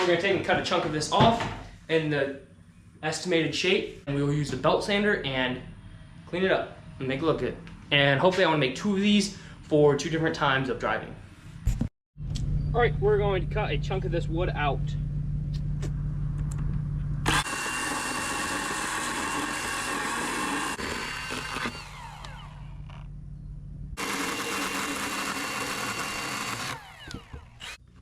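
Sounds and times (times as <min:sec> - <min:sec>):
steady low hum: 0:00.4 - 0:17.4, 0:21.7 - 0:24.0
saw motor spinning down: 0:17.2 - 0:23.1, 0:24.0 - 0:27.9
power saw cutting wood: 0:17.3 - 0:23.0, 0:24.0 - 0:27.8.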